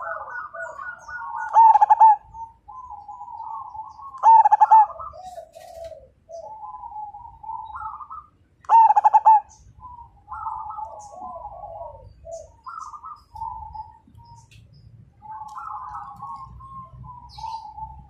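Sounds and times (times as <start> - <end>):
doves cooing: 0.0 - 18.0.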